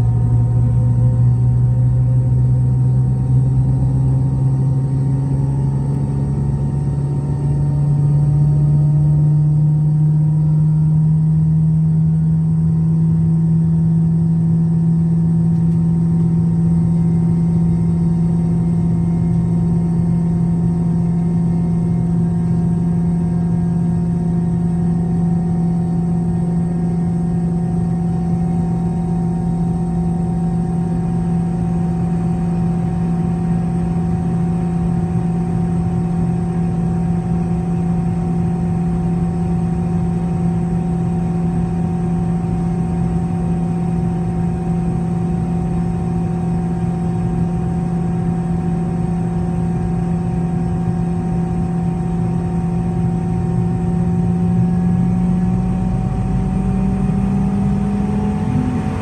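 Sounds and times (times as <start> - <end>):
jet engines humming and whining: 55.0 - 59.0.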